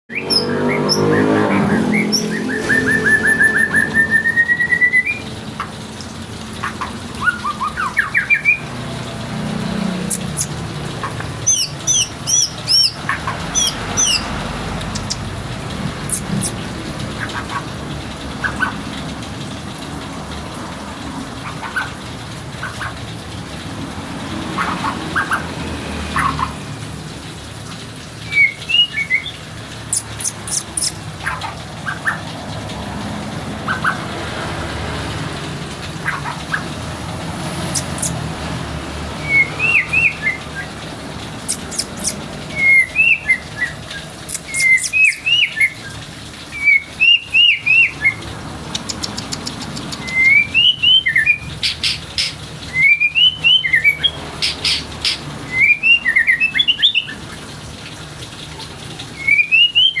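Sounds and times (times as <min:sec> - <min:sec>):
bird singing whistled phrases: 0:00.1 - 0:05.3, 0:28.3 - 0:29.3, 0:41.5 - 0:45.8, 0:48.9 - 0:51.4, 0:52.7 - 0:54.1, 0:55.5 - 0:57.2, 0:59.2 - 1:00.0.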